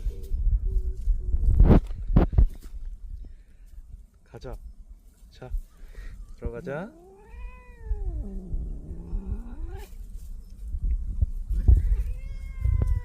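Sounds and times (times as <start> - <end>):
low rumbling noise: 0.0 - 3.5, 7.7 - 13.0
cat meowing: 6.9 - 8.5, 11.8 - 13.0.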